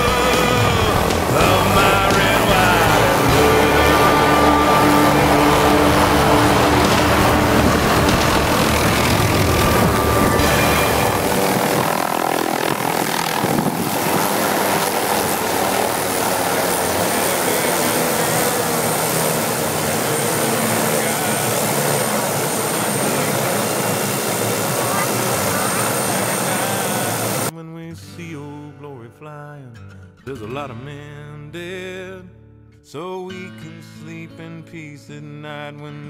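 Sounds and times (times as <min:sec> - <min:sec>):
helicopter engine and rotor: 0:00.0 - 0:27.5.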